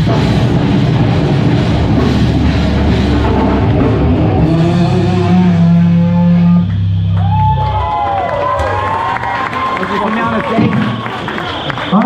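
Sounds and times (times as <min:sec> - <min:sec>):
distorted electric guitar: 0:00.0 - 0:08.0
bass guitar: 0:00.0 - 0:09.4
rock drums: 0:00.0 - 0:09.8.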